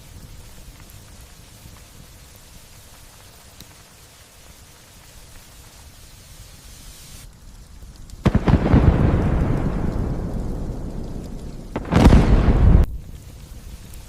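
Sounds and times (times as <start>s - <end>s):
light rain hiss: 0.0s - 14.0s
thunder crack and rumble: 8.2s - 14.0s.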